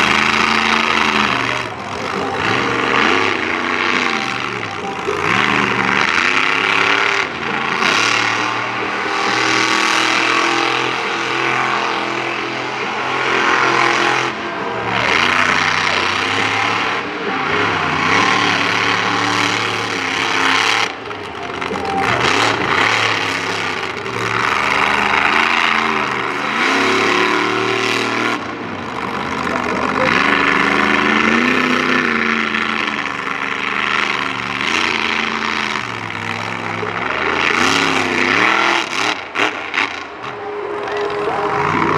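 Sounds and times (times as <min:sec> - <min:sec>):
truck engine revving: 0:00.0 - 0:41.9.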